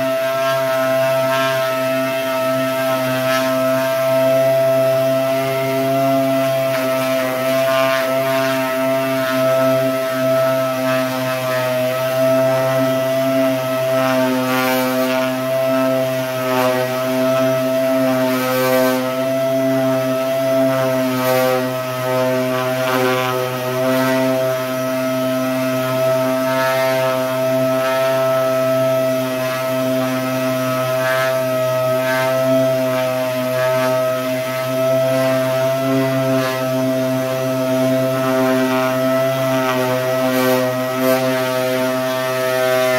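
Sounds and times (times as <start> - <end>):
sander whining: 0.0 - 42.9
sanding pad scratchy hiss: 0.0 - 42.9.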